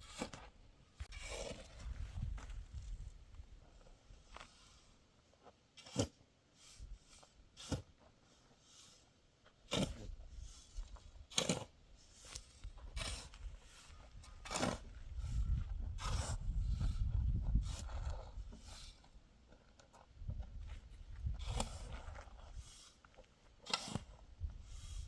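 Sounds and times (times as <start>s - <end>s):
sharp handwork strokes: 23.6s - 24.1s.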